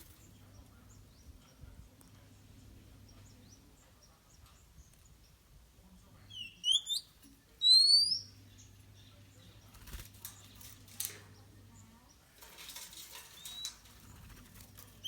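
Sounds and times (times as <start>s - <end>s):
faint low hum: 0.0s - 15.0s
bird chirping and whistling: 6.4s - 8.3s.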